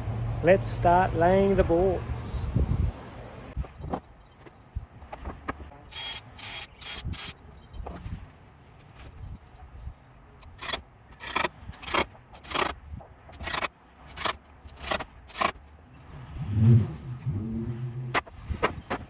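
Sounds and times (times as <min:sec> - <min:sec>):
low wavering sound: 0:16.2 - 0:18.2.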